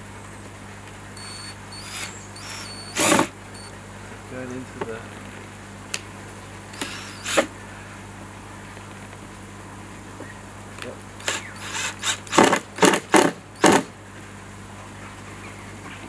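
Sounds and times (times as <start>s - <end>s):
steady low hum: 0.0s - 16.0s
screw scraping: 1.2s - 3.7s, 6.8s - 7.5s, 11.2s - 13.0s
screwdriver bursts: 1.2s - 3.7s, 6.7s - 7.5s, 11.2s - 13.9s.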